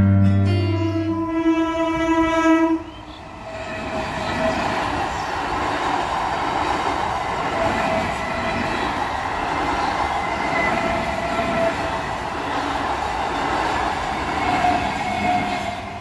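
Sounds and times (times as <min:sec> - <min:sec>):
train horn: 0:00.0 - 0:03.2, 0:14.4 - 0:16.0
train coaches passing: 0:01.0 - 0:16.0.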